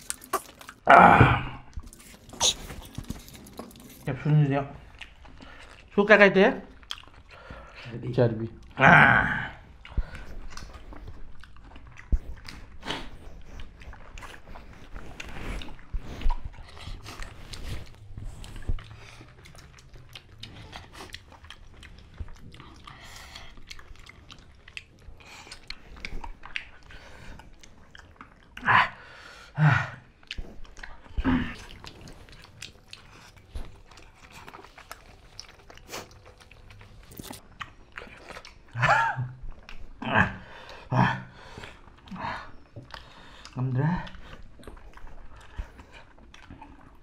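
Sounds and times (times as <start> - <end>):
wet mouth clicks: 0.0 - 0.9
people chewing: 0.0 - 47.0.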